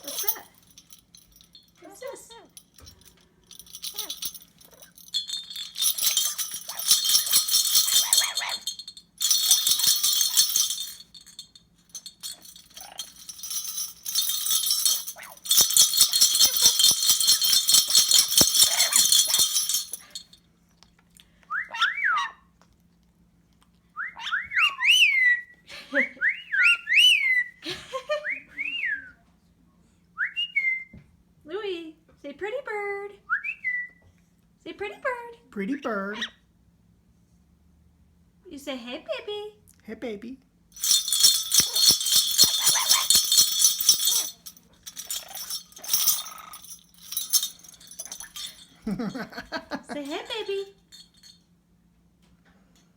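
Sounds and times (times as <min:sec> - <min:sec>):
small bells jangling: 0:00.0 - 0:20.4, 0:40.7 - 0:51.5.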